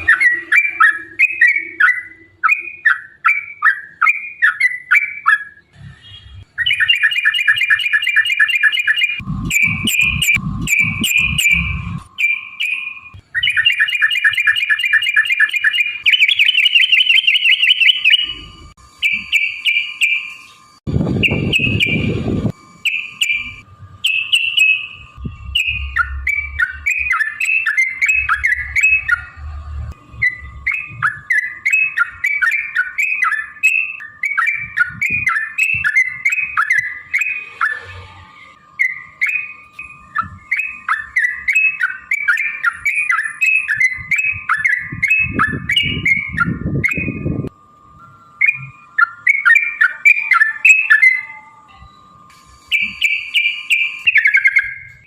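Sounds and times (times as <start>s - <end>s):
bird chirping song: 0.0s - 38.0s, 38.7s - 52.0s, 52.7s - 55.0s
faint steady hum: 0.0s - 55.0s
low rumbling noise: 9.2s - 12.2s, 20.8s - 24.1s, 24.8s - 31.3s.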